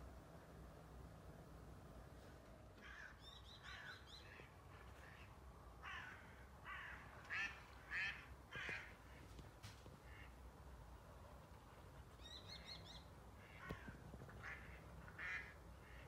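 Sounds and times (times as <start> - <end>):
harsh bird calls: 2.8 - 9.3.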